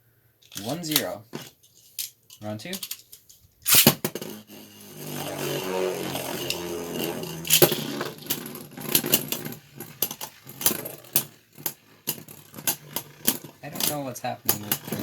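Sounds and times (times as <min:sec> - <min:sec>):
spinning tops clacking together: 0:01.9 - 0:15.0
spinning tops whirring: 0:03.7 - 0:15.0.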